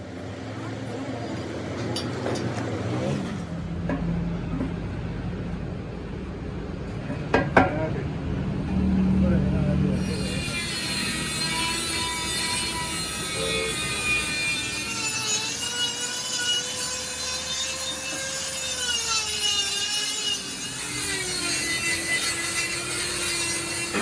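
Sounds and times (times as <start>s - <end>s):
power tool working on metal: 10.0s - 24.0s.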